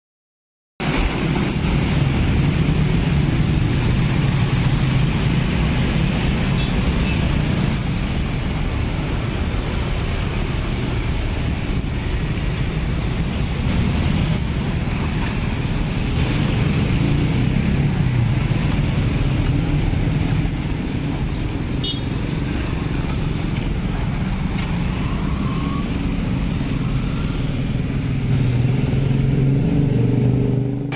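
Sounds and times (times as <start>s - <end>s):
road traffic rumble: 0.8s - 30.9s.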